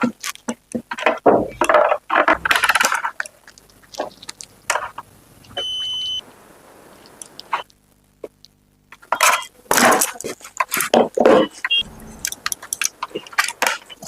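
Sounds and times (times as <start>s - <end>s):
short high electronic beep: 11.7s - 12.4s.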